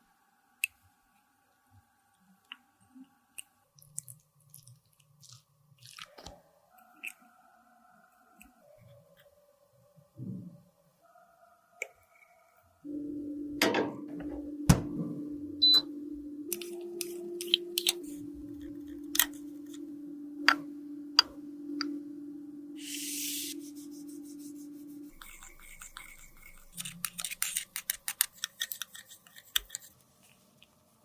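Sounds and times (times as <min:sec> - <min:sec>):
electric appliance humming: 0:12.9 - 0:27.8
snips: 0:25.1 - 0:30.0.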